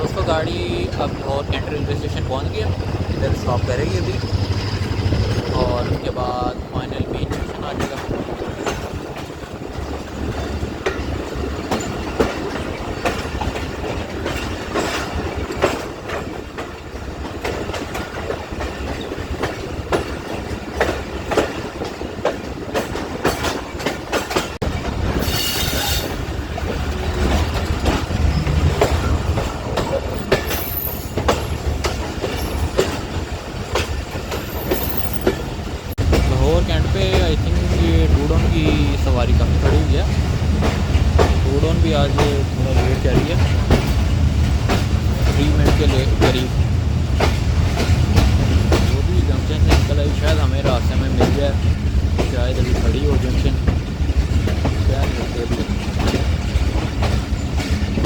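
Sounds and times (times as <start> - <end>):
train rumbling: 0.0 - 58.0
wheels clacking over rail joints: 0.0 - 58.0
high squeal: 25.2 - 26.2.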